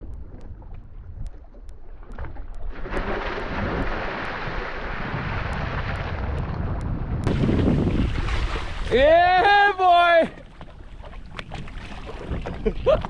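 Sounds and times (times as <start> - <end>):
water rushing: 2.7 - 6.6, 7.2 - 13.0
wind on microphone: 2.9 - 9.4, 10.3 - 13.0
low rumble: 3.4 - 9.0.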